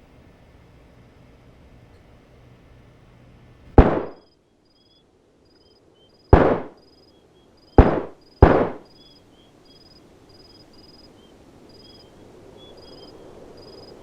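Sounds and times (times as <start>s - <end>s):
gunshots: 3.8s - 4.3s, 6.3s - 6.8s, 7.8s - 8.9s.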